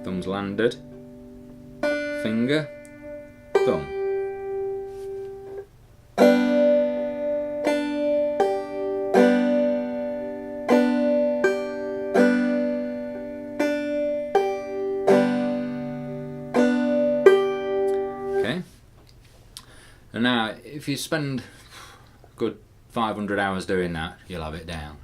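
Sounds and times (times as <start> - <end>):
banjo played clawhammer style: 0.0 - 18.6.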